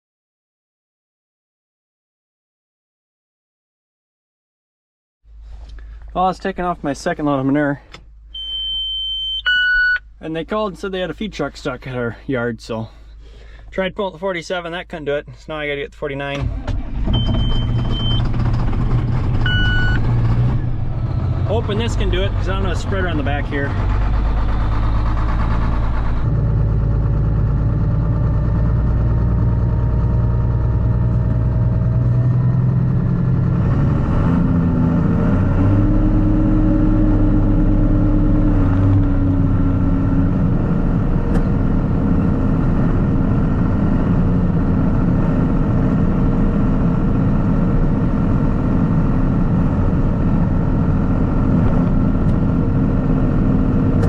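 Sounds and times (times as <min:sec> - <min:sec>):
tractor engine running: 0:16.4 - 0:33.6, 0:37.1 - 0:54.0.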